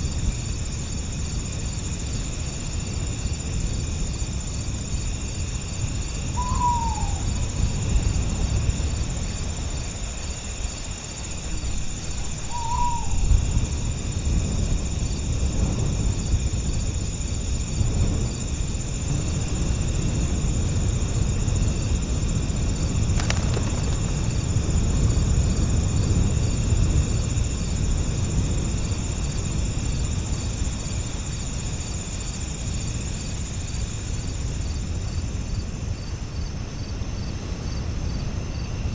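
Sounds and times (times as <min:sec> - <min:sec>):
crickets trilling: 0:00.0 - 0:38.9
low rumble of breeze: 0:00.0 - 0:38.9
bird short falling calls: 0:06.4 - 0:07.3.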